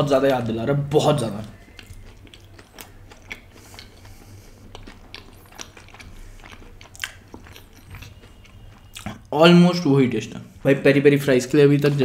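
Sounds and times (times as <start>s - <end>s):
soft wet chewing: 0.2s - 9.4s.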